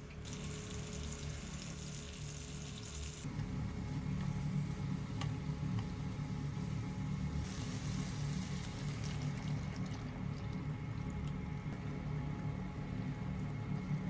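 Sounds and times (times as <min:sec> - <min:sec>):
soft kitchen sounds: 0:00.0 - 0:14.0
food sizzling in a frying pan: 0:05.0 - 0:09.6.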